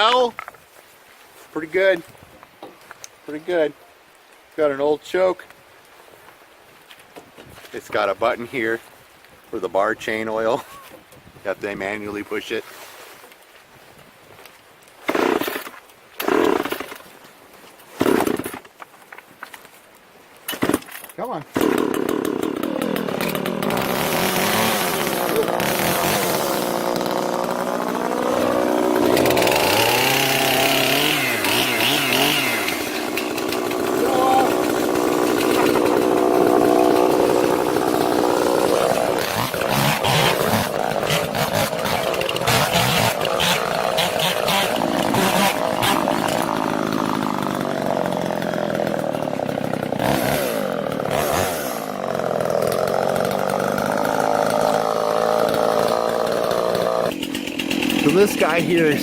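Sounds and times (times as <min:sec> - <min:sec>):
chainsaw running: 0:15.1 - 0:17.0, 0:18.0 - 0:18.7, 0:21.6 - 0:59.0.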